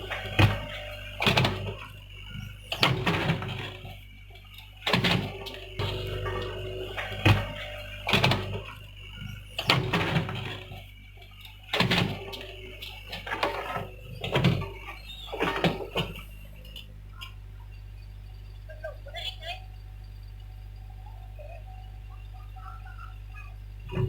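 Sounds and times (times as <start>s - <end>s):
knocks and clunks: 0.0s - 17.4s
excavator engine running: 0.0s - 24.0s.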